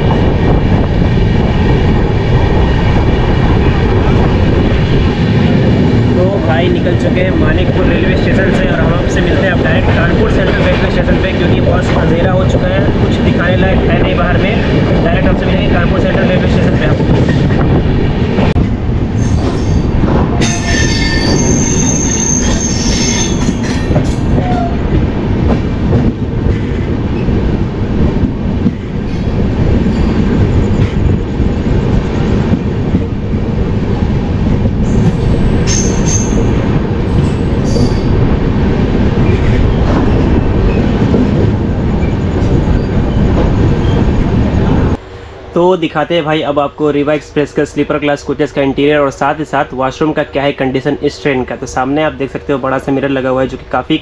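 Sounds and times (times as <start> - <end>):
train wheels rumbling: 0.0 - 54.0
high-pitched wheel squeals: 19.2 - 24.8, 35.7 - 36.6.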